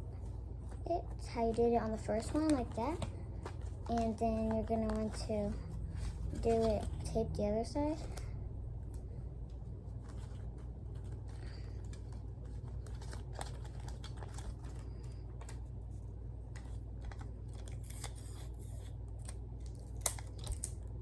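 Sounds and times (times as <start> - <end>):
steady low hum: 0.0 - 21.0
sticky tape clicks and crinkles: 1.4 - 7.1, 10.9 - 15.7, 16.5 - 21.0.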